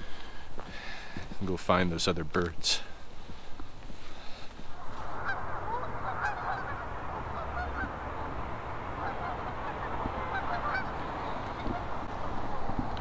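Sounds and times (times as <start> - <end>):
flock of geese honking: 4.7 - 12.6.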